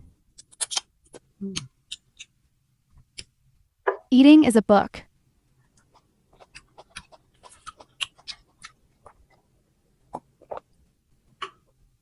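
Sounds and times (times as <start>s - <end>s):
person chewing crunchy fruit: 0.4s - 2.3s, 5.8s - 9.4s, 10.0s - 10.8s
wet mouth clicks: 6.4s - 9.2s.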